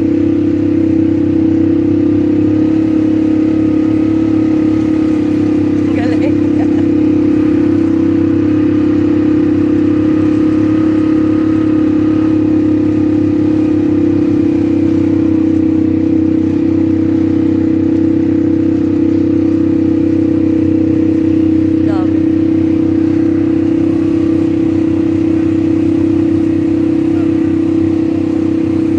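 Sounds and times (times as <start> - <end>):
atv engine droning: 0.0 - 28.9.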